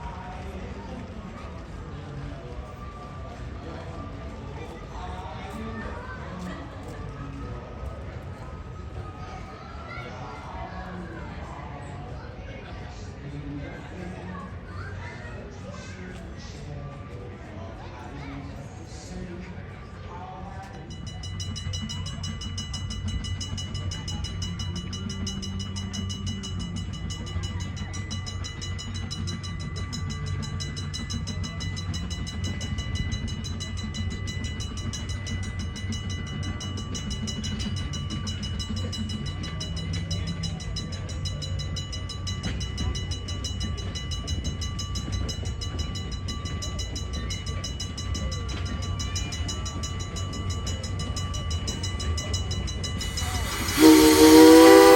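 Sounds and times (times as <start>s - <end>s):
train rumbling along track: 20.7s - 54.9s.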